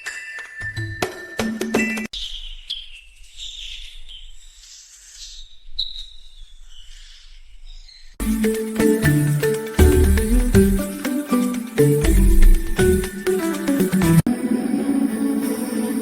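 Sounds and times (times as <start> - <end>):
jingly background music: 0.0 - 2.1, 8.2 - 16.0.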